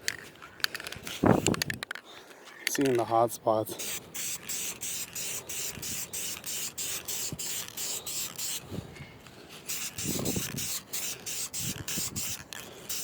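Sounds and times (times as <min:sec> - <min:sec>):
aerosol can spraying hisses: 0:03.8 - 0:08.7, 0:09.6 - 0:13.0.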